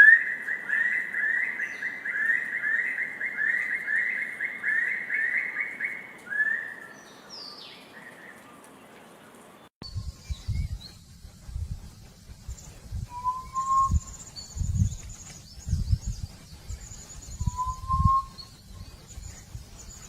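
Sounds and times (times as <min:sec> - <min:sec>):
short whistle: 0:13.1 - 0:14.1, 0:17.5 - 0:18.4
quail whistled calls: 0:13.1 - 0:14.4, 0:17.4 - 0:18.6.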